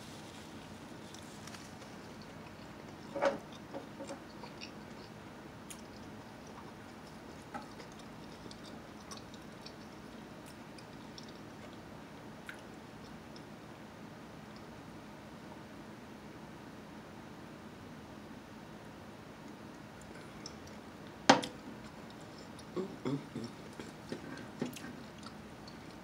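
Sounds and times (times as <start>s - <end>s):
faint steady hiss: 0.0s - 26.0s
person chewing: 1.0s - 13.5s, 20.0s - 26.0s.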